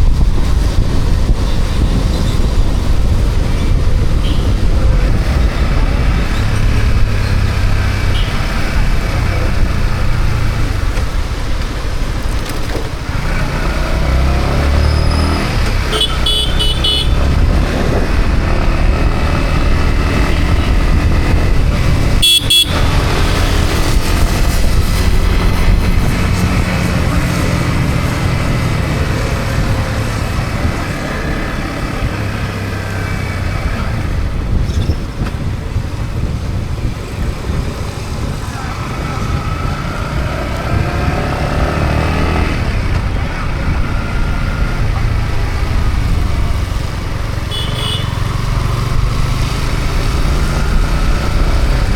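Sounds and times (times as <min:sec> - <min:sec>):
road and traffic noise: 0:00.0 - 0:51.9
motorcycle engine running: 0:14.8 - 0:51.9
short horn beeps: 0:15.9 - 0:17.2, 0:22.2 - 0:22.9, 0:47.5 - 0:48.2.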